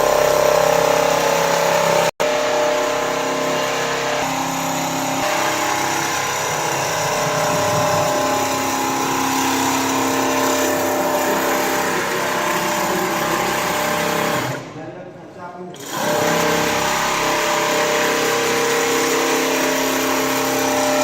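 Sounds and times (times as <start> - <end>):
quilting machine humming: 0.0 - 14.7, 15.7 - 21.0.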